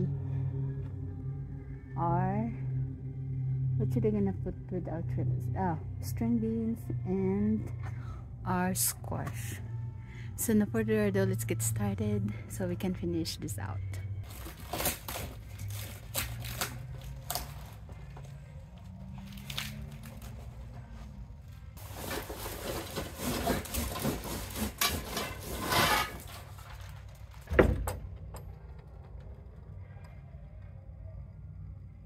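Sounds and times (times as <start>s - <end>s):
scraping and rustling: 21.8s - 27.5s.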